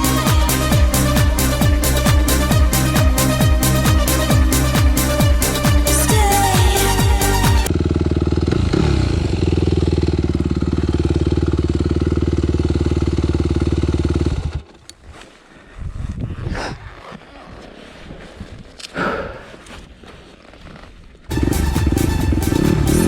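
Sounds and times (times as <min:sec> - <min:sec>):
music: 0:00.0 - 0:07.7, 0:21.3 - 0:23.0
motorcycle engine running: 0:00.0 - 0:14.9, 0:21.3 - 0:23.0.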